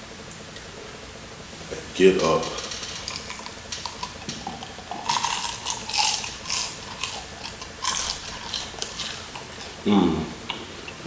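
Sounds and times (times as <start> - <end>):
crunching and chewing fried chicken: 2.0 - 11.0.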